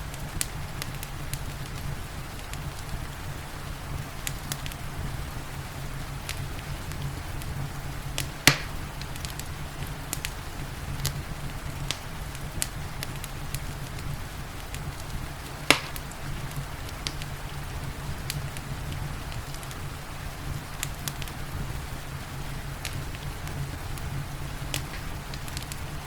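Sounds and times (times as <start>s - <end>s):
rain hissing: 0.0s - 26.0s
wood fire crackling: 0.0s - 26.0s
loud sharp fire pops: 4.2s - 4.8s, 6.2s - 19.9s, 22.6s - 26.0s.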